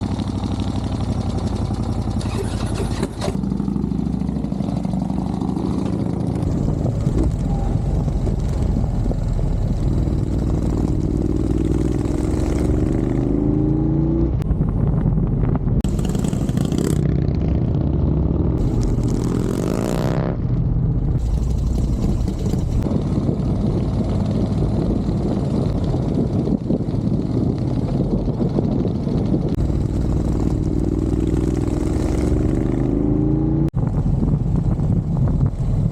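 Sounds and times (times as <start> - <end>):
vehicle engine revving: 15.4 - 20.5.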